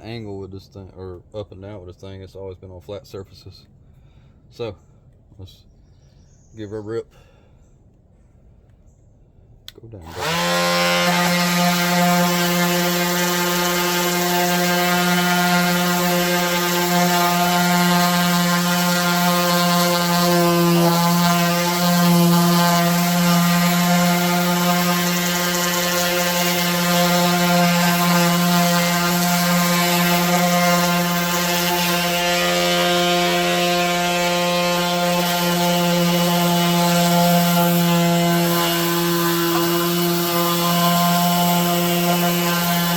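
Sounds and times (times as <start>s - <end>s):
power sander humming: 10.0s - 42.9s.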